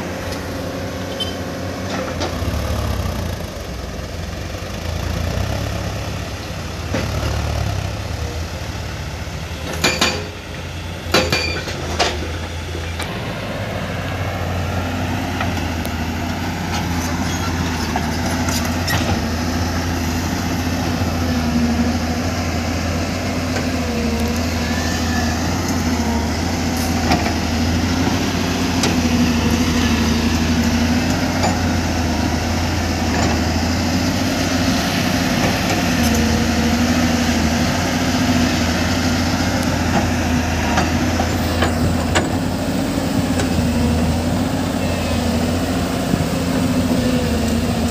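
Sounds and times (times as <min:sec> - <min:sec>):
heavy diesel engine running: 0:00.0 - 0:47.9
sharp metallic clanks: 0:09.7 - 0:10.4, 0:11.1 - 0:12.2.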